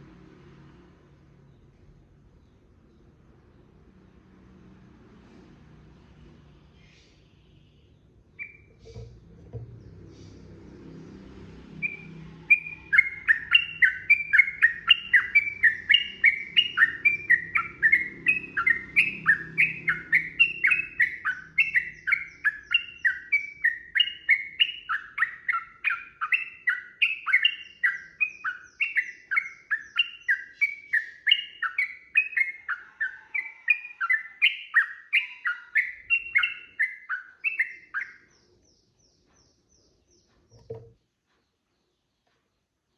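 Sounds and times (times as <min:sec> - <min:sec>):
bird singing bubbly notes: 0:08.4 - 0:10.0, 0:11.8 - 0:33.1.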